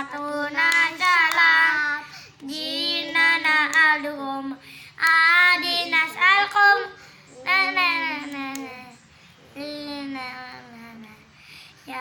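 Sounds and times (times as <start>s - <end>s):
child singing: 0.0s - 9.0s.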